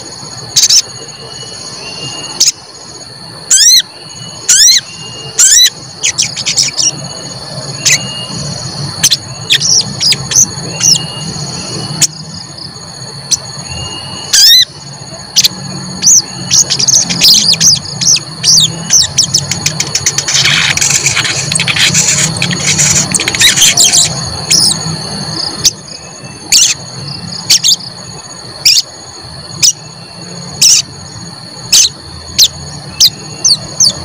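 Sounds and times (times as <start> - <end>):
steady high-pitched tone: 0.0 - 34.0
bird chirps and whistles: 0.6 - 2.6, 3.5 - 12.2, 13.3 - 14.8, 15.4 - 24.8
low hum: 2.4 - 33.0.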